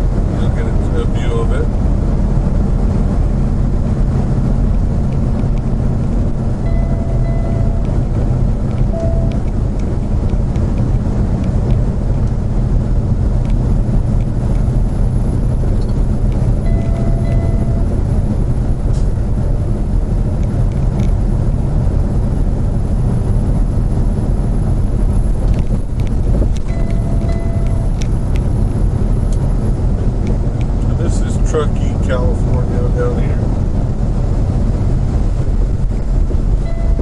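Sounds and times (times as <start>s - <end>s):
car road and engine noise: 0.0s - 37.0s
brief faint tone: 6.7s - 7.9s, 8.9s - 9.4s, 16.7s - 17.9s, 26.7s - 28.0s, 36.6s - 37.0s.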